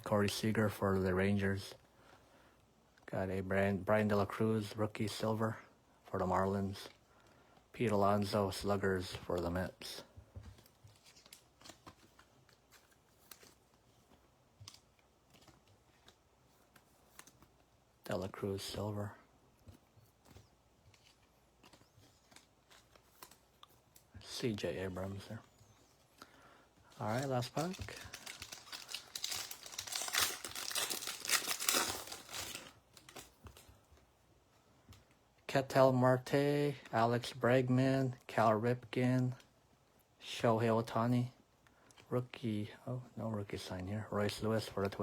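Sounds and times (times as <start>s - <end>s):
trading cards rustling: 8.2s - 34.1s
faint clicks of cards: 10.2s - 17.7s, 19.6s - 24.1s
wrapper crinkling: 26.8s - 33.7s.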